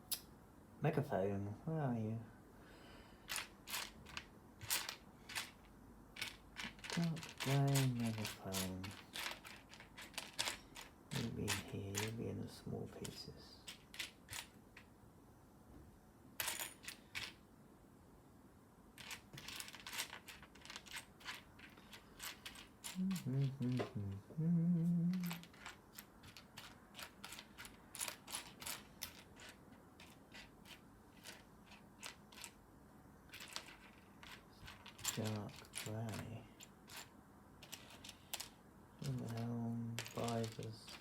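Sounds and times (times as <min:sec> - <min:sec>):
plastic pieces clicking and rattling: 0:03.3 - 0:12.2, 0:13.0 - 0:14.9, 0:19.0 - 0:24.0, 0:25.1 - 0:32.6, 0:33.3 - 0:41.0
person humming: 0:22.9 - 0:25.5.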